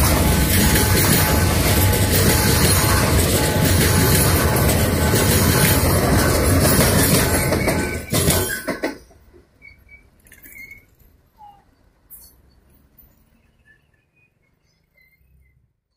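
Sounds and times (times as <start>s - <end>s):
sharp wheel clacks: 0.0s - 9.2s
freight train rolling past: 0.0s - 10.6s.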